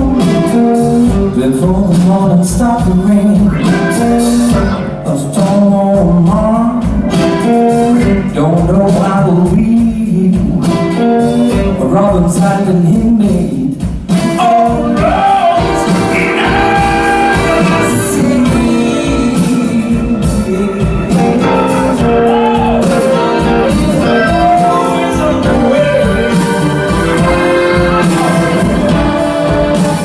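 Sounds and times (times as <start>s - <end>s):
blues band playing: 0.0s - 30.0s
guitar: 0.0s - 30.0s
man singing: 0.0s - 30.0s.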